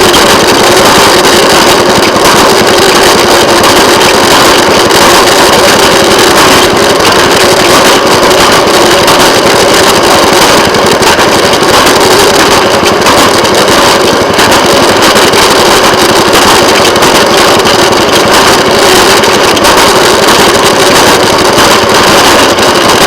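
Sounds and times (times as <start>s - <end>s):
small engine running on rails: 0.0s - 23.0s.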